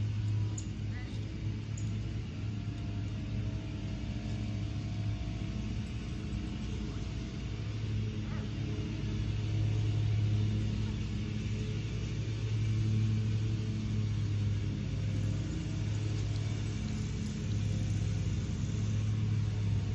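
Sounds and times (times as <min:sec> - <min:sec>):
engine idling hum: 0:00.0 - 0:19.9.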